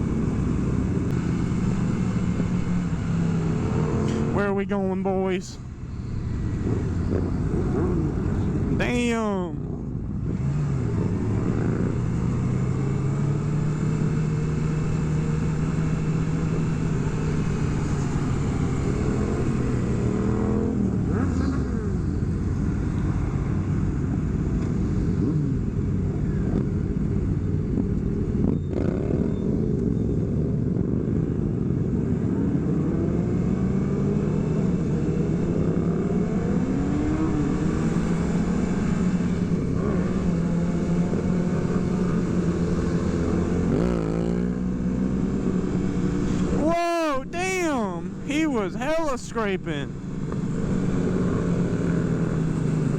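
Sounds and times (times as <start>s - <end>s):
motorcycle engines revving: 0.0s - 52.9s
steady rush of noise: 46.5s - 50.0s.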